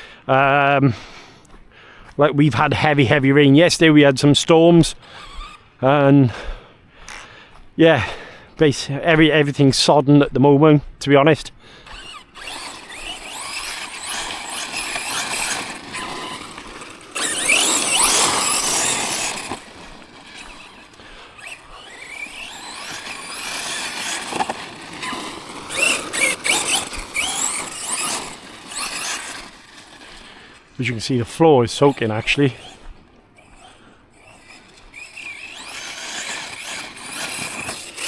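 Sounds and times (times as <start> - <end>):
electric motor whining: 4.8 - 5.6, 11.8 - 38.0.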